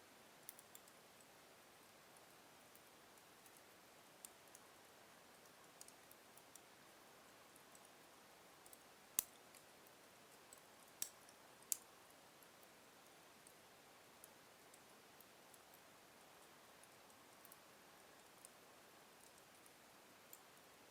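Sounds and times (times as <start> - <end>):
logs crackling in fireplace: 8.6 - 9.7, 10.4 - 12.6.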